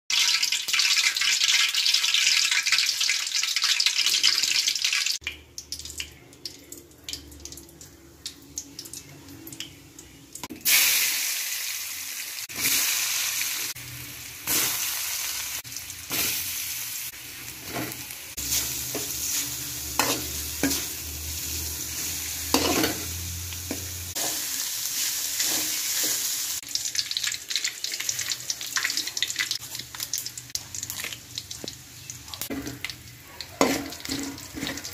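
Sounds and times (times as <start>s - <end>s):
hot oil sizzling: 0.1s - 34.9s
stirring against a pan: 32.4s - 34.9s.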